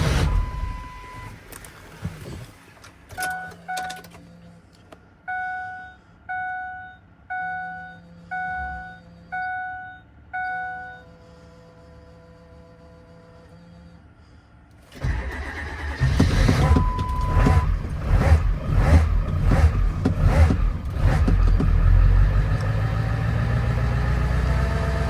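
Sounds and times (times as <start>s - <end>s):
short warning beeps: 5.3s - 11.0s.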